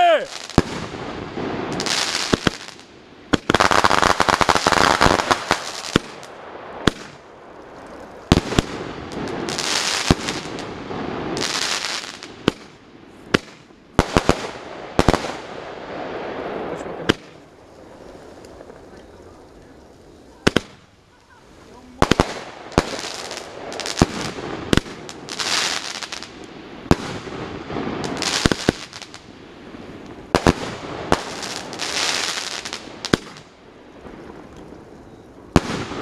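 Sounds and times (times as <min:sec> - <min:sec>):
fireworks bangs: 0:00.0 - 0:36.0
fireworks crackling: 0:00.0 - 0:36.0.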